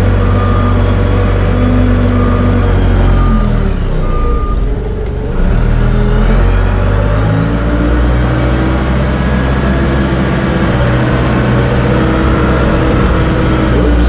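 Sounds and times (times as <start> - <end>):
diesel engine running under load: 0.0 - 14.0.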